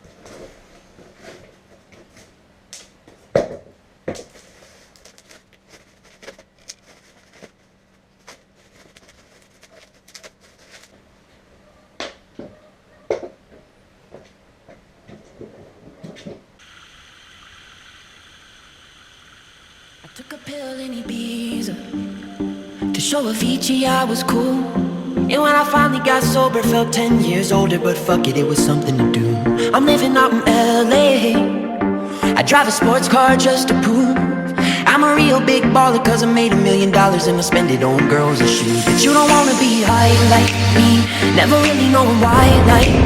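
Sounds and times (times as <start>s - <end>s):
faint steady hum: 0.0s - 33.2s
steady hiss: 16.6s - 23.4s, 38.3s - 43.0s.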